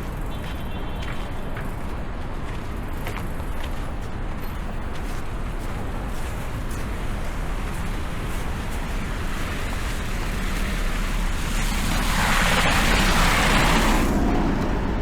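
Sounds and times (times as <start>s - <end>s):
low rumble of city traffic: 0.0s - 15.0s
tyres hissing through slush: 4.6s - 14.5s.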